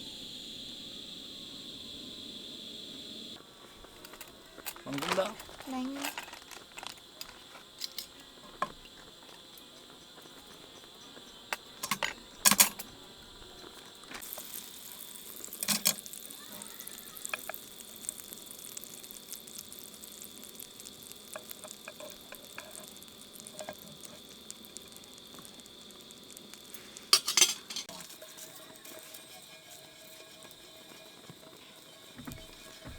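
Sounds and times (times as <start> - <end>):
food sizzling in a frying pan: 0.0 - 32.9
utensils knocking against pan: 7.2 - 14.2, 27.1 - 32.9.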